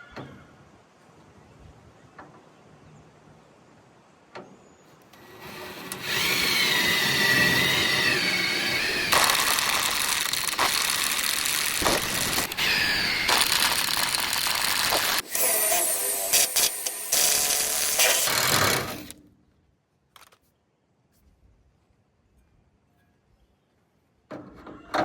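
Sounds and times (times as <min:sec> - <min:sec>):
power drill whining into metal: 0:05.1 - 0:19.2.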